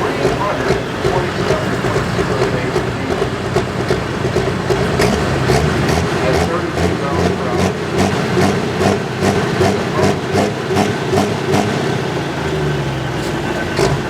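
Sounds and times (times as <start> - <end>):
tractor engine idling: 0.0 - 14.0.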